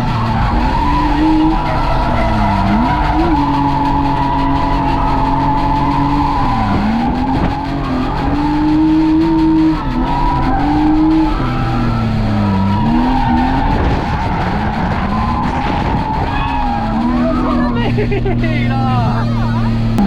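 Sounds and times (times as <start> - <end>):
car engine at high revs: 0.0 - 20.0
tyres skidding: 0.0 - 20.0.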